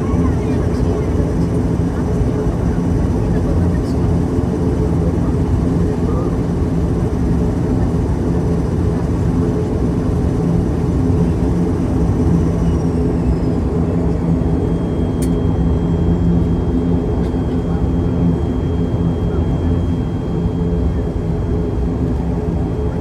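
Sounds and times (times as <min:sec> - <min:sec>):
propeller engines droning: 0:00.0 - 0:23.0
brief click: 0:15.2 - 0:15.4.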